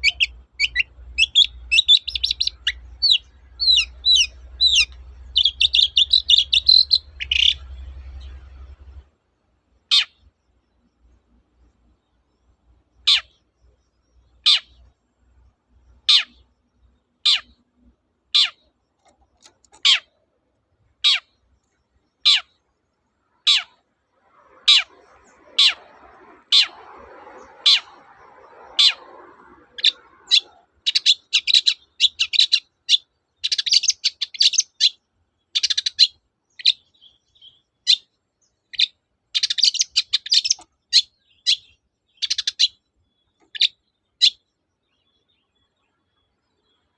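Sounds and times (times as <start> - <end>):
bird chattering: 0.0 - 8.4, 13.0 - 13.4, 15.9 - 16.5, 17.2 - 17.6, 18.3 - 20.2, 21.0 - 21.4, 22.2 - 22.6, 23.3 - 23.8, 29.8 - 38.1, 38.7 - 44.4
bird sharp calls: 0.0 - 9.0, 9.9 - 10.3, 12.9 - 13.5, 14.3 - 14.9, 15.9 - 16.5, 17.2 - 17.6, 18.3 - 20.2, 21.0 - 22.6, 23.3 - 46.9.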